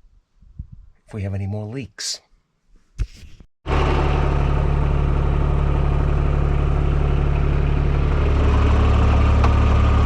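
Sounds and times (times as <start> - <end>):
tractor diesel engine idling: 3.7 - 10.0.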